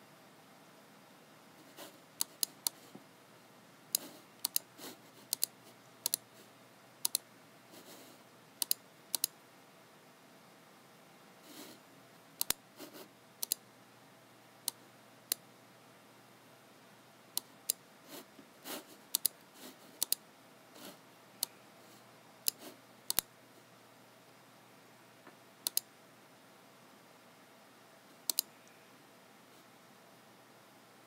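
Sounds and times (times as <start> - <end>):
mouse and keyboard clicks: 2.2 - 2.9, 3.9 - 6.3, 7.0 - 7.2, 8.6 - 9.4, 12.4 - 12.6, 13.4 - 13.6, 19.1 - 19.4, 20.0 - 20.2, 22.4 - 23.3, 25.6 - 25.9, 28.2 - 28.8.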